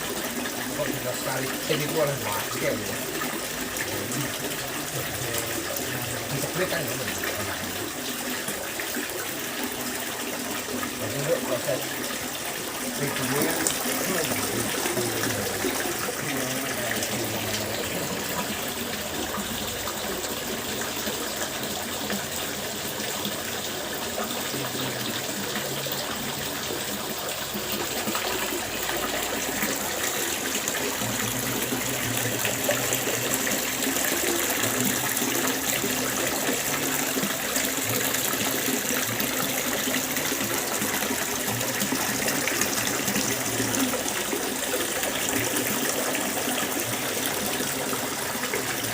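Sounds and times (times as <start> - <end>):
water fountain splashing: 0.0 - 48.9.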